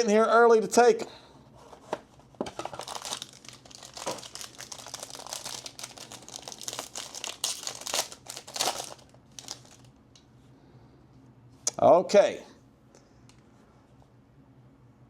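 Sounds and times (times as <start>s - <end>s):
plastic wrapping crinkling and tearing: 2.5s - 10.0s.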